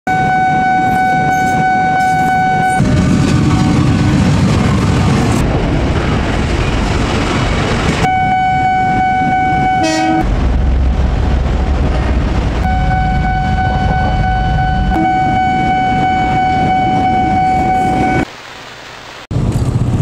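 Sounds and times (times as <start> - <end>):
train horn: 0.1 - 2.8, 8.1 - 10.3, 12.6 - 18.2
passing train rumble: 0.1 - 18.3, 19.3 - 20.0.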